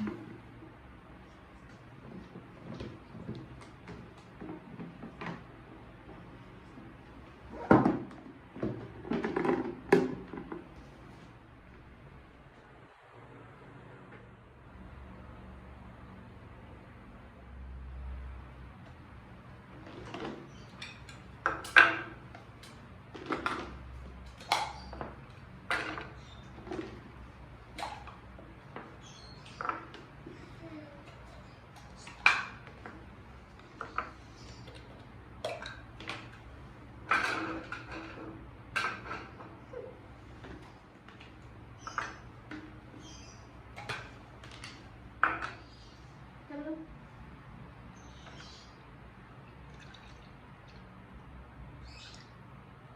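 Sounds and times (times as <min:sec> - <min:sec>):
kitchen items clattering on counter: 0:07.5 - 0:10.8, 0:19.8 - 0:30.4, 0:31.0 - 0:39.8.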